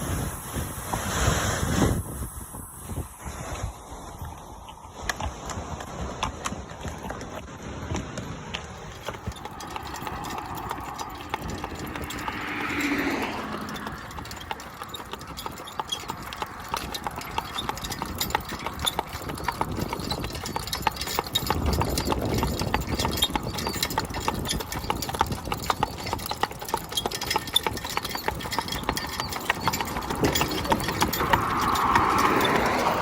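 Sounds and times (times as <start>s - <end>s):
horse hooves clip-clopping: 3.5s - 33.0s.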